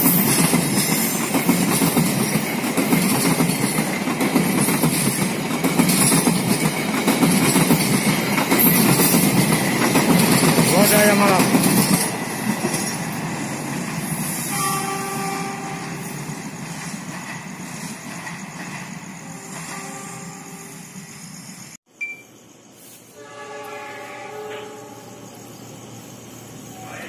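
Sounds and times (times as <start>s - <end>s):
train rumbling past: 0.0s - 21.8s, 23.1s - 27.0s
distant train horn: 14.4s - 16.2s, 19.2s - 20.9s, 23.1s - 25.4s.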